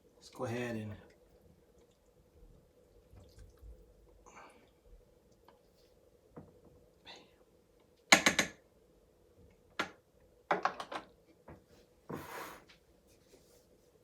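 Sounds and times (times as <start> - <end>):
short scrape: 12.1 - 12.8.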